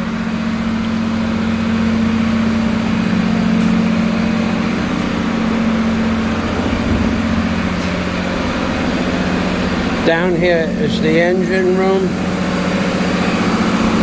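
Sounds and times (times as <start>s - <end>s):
ship engine droning: 0.0s - 14.0s.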